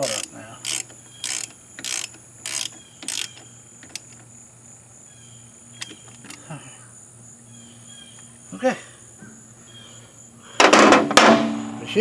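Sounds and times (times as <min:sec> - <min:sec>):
ratchet wrench clicking: 0:00.0 - 0:04.2, 0:05.8 - 0:06.4.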